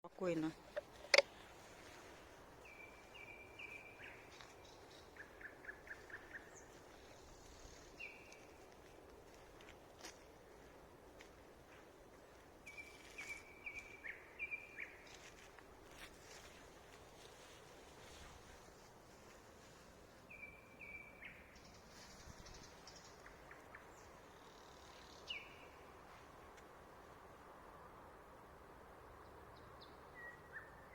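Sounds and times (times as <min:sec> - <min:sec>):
faint songbird singing: 0:00.2 - 0:09.0, 0:12.6 - 0:15.5, 0:20.2 - 0:26.2, 0:29.1 - 0:30.9
bird singing faintly: 0:20.3 - 0:25.8.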